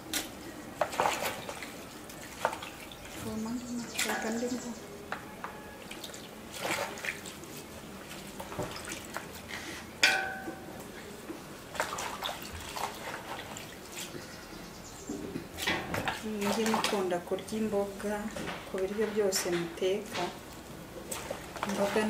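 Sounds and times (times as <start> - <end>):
water splashing and dripping: 0.0 - 14.2, 15.4 - 17.9, 20.2 - 22.0
sharp ringing clank: 10.0 - 10.8.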